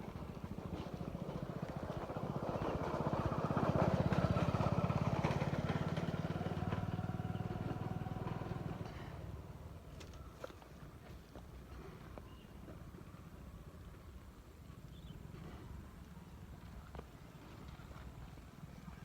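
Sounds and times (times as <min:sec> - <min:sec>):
vehicle engine chugging: 0:00.0 - 0:09.5.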